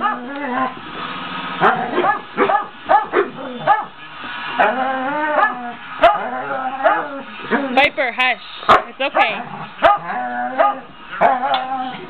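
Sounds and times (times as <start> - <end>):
dog yipping and whining: 1.6 - 3.9, 9.8 - 12.0.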